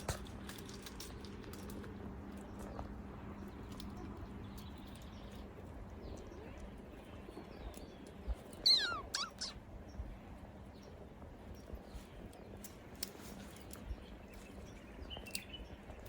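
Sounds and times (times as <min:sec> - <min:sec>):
faint scattered clicks: 0:00.0 - 0:16.0
kitten meowing: 0:08.7 - 0:09.6.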